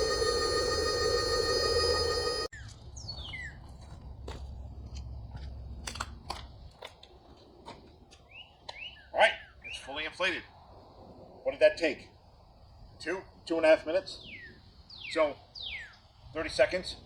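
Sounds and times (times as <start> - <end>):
electric pump whining: 0.0 - 2.5.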